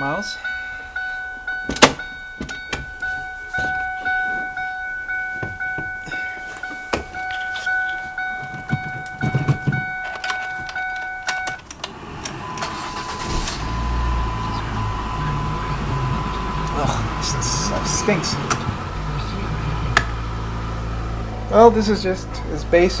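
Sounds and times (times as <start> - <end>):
two-tone warning chime: 0.0 - 23.0
clicks and knocks of keys: 6.1 - 11.9
low steady rumble: 12.9 - 23.0.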